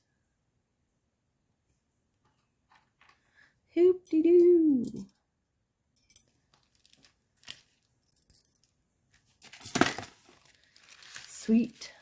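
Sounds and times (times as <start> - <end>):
metal jewelry clinking: 4.0 - 5.2, 5.9 - 11.7.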